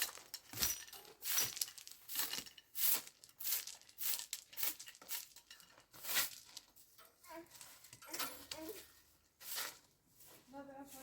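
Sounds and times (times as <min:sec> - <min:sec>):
rustling crinkling strokes: 0:00.0 - 0:11.0.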